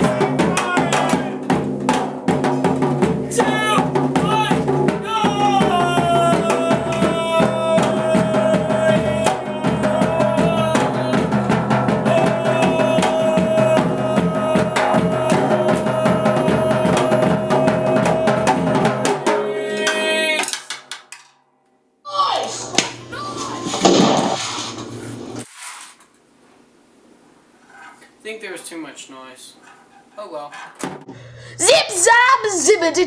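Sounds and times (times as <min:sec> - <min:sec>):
fast drum beat: 0:00.0 - 0:20.2.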